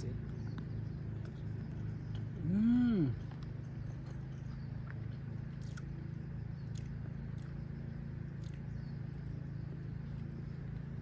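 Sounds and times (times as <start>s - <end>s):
steady low hum: 0.0s - 11.0s
crisp bites and chewing: 4.8s - 6.0s, 6.6s - 7.6s, 8.3s - 9.3s.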